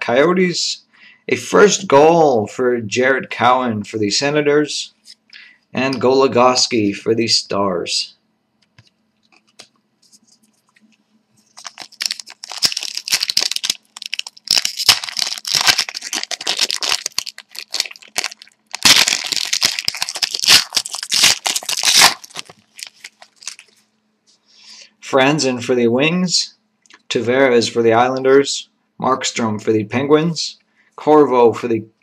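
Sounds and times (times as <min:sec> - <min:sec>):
cards handled: 0:08.6 - 0:23.8
wrapper tearing and crinkling: 0:11.4 - 0:23.8.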